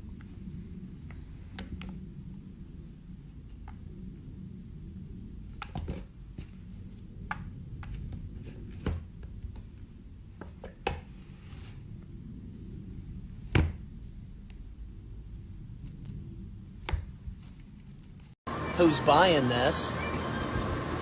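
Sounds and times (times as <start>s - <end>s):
high-pitched squeaks: 3.3s - 3.7s.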